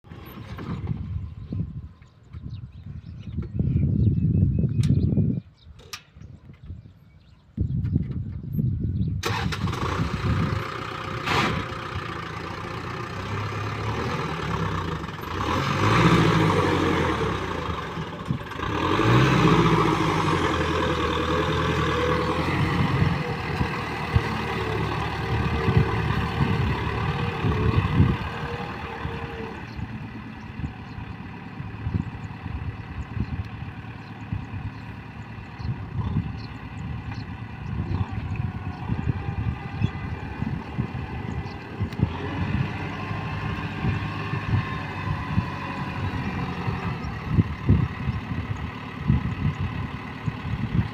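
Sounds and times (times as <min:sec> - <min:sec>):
tractor diesel engine revving: 0:00.0 - 0:01.5, 0:09.2 - 0:50.9.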